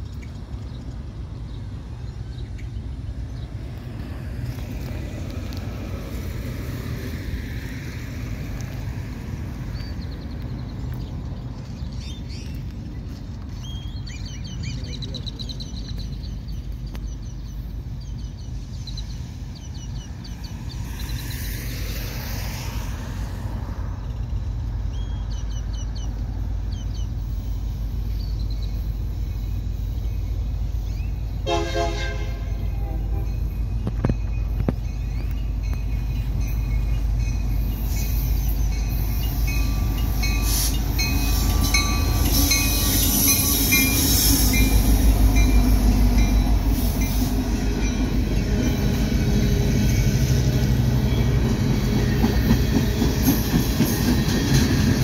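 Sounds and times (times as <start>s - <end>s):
birds chirping: 0.0s - 7.0s, 8.0s - 22.3s, 23.8s - 55.0s
distant diesel train rumble: 0.0s - 55.0s.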